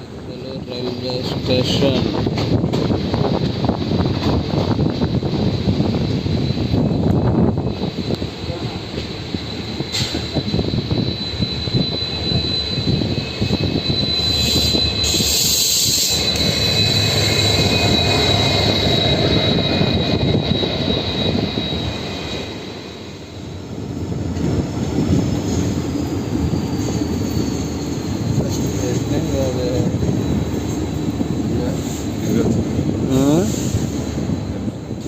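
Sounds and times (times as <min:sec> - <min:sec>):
train rumbling on rails: 0:00.0 - 0:35.0
high-pitched whine: 0:05.5 - 0:24.2.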